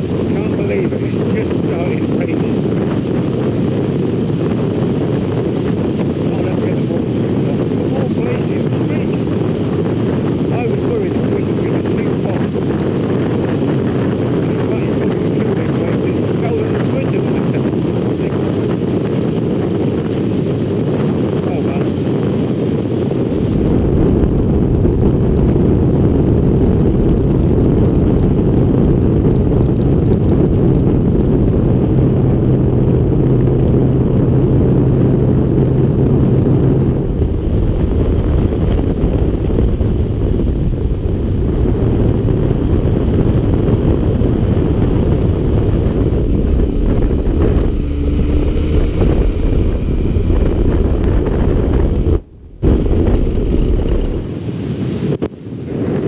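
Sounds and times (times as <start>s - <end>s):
wind rushing over microphone: 0.0s - 56.0s
motorcycle engine running: 23.1s - 54.2s.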